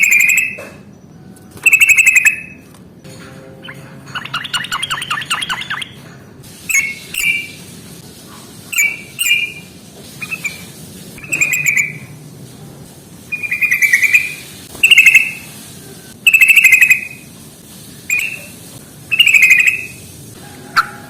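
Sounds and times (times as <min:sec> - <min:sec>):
bulbul chattering calls: 0:01.6 - 0:02.6, 0:08.8 - 0:12.1, 0:13.3 - 0:15.5, 0:16.3 - 0:17.2, 0:18.1 - 0:20.0.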